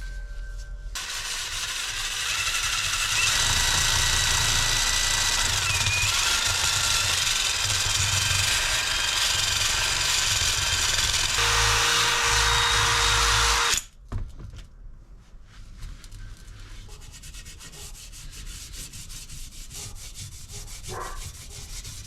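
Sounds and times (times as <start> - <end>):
power tool whining on metal: 1.0 - 13.9.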